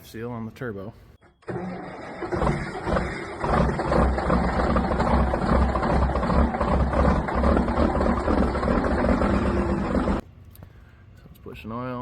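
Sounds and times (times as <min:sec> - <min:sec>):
diesel engine idling: 0:01.5 - 0:10.2.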